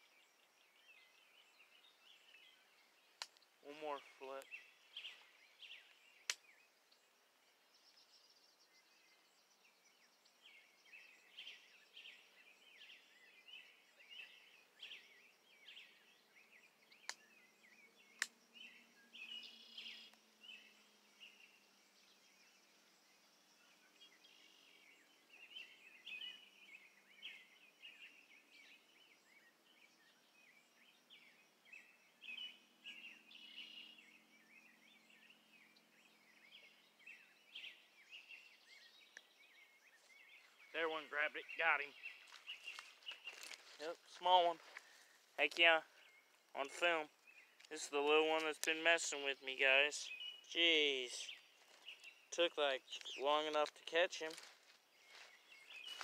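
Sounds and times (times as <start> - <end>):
faint birdsong: 0.0 - 56.0
sharp clicks: 18.2 - 18.4.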